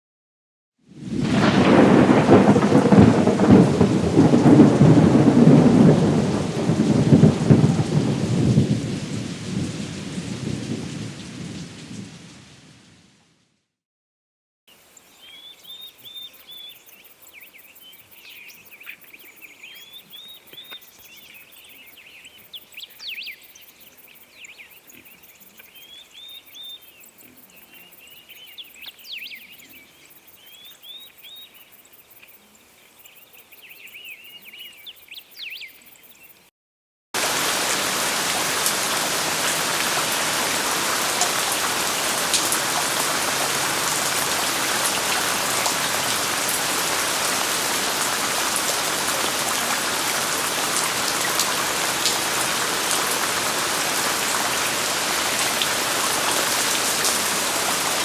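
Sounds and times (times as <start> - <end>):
heavy rain: 0.9 - 12.9, 37.2 - 58.0
birds chirping: 14.8 - 36.5.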